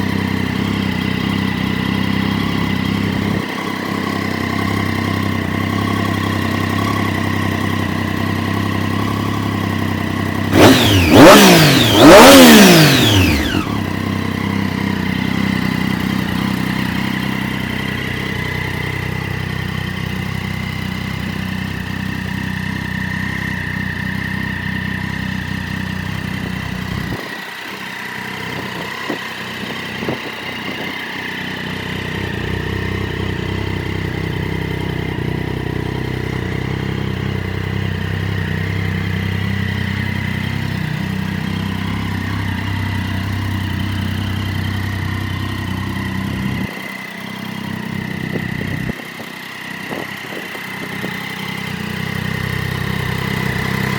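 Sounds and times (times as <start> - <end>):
motorcycle engine idling: 0.0 - 53.9.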